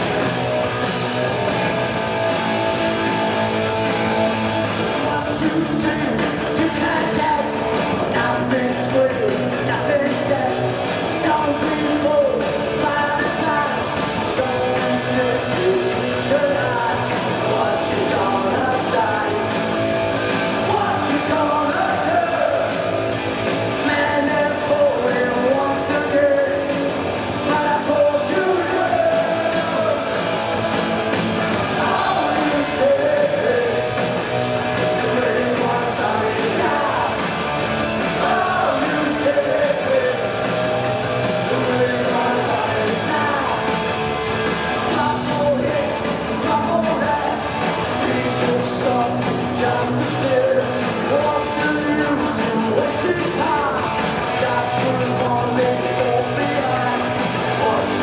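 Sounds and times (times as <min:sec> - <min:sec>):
punk rock band playing: 0:00.0 - 0:58.0
man yelling vocals: 0:20.6 - 0:22.8.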